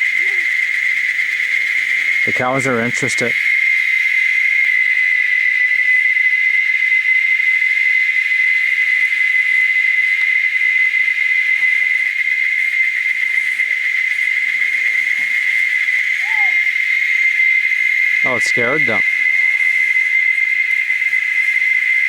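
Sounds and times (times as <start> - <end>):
insect chorus drone: 0.0 - 22.0.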